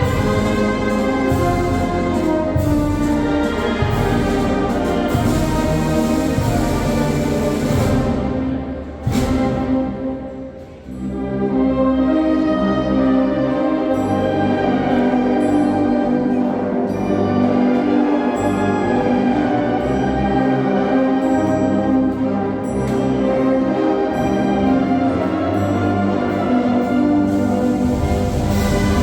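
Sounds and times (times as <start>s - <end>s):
wind band brass chords: 0.0s - 29.0s
percussion stroke: 27.2s - 29.0s.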